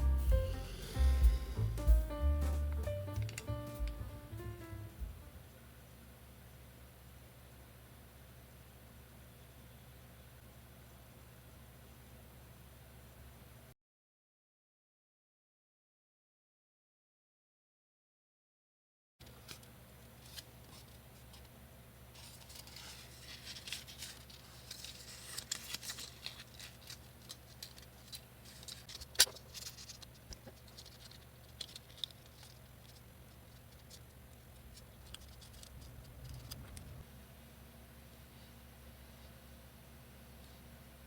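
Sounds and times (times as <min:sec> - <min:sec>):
paper rustling: 0:19.4 - 0:36.7.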